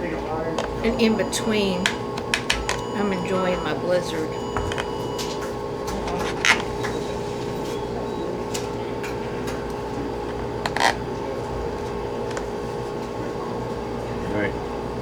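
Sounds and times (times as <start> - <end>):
fan humming: 0.0 - 15.0
clicks and rustles of eating: 4.7 - 13.4.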